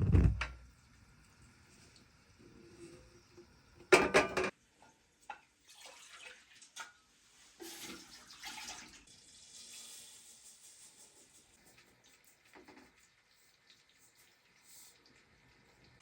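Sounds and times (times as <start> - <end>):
dishes and pots clinking: 3.9 - 4.6
water running and splashing: 5.6 - 6.8, 7.6 - 9.7.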